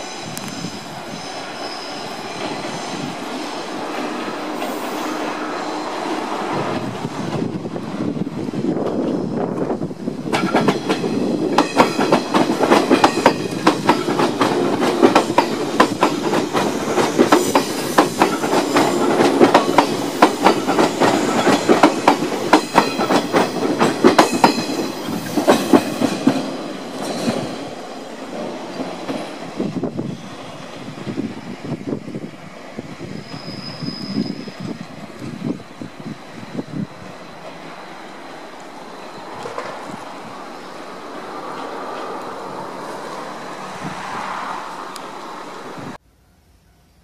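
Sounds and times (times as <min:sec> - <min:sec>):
train wheels clattering over rail joints: 0:08.8 - 0:30.0.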